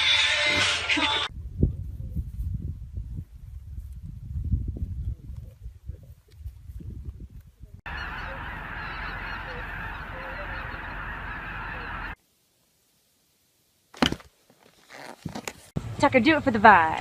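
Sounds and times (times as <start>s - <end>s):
geese honking: 7.9s - 12.2s
low uneven noise: 7.9s - 14.8s.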